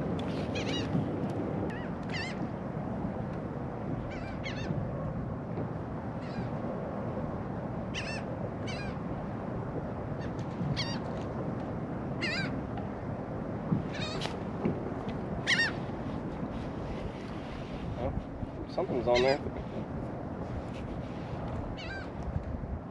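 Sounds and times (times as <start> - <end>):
seabirds calling: 0.3 - 1.0, 7.9 - 9.0, 10.2 - 11.1, 12.2 - 12.6, 13.9 - 14.3, 15.4 - 16.0, 19.0 - 19.4.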